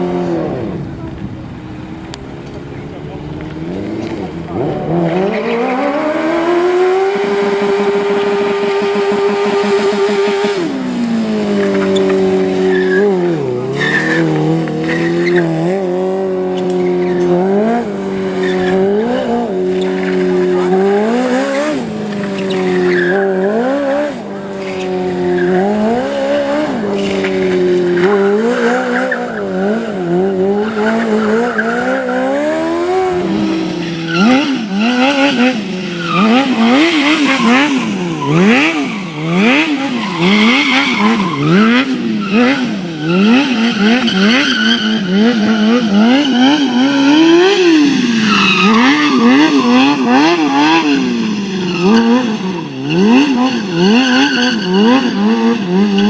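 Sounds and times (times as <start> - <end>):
motorcycle engine revving: 0.0 - 56.0
tyre squeal: 11.6 - 15.8, 18.1 - 24.0, 24.6 - 56.0.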